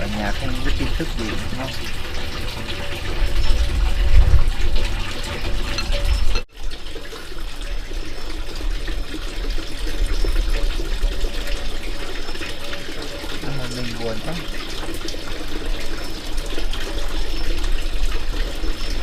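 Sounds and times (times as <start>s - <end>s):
water running: 0.0s - 19.0s.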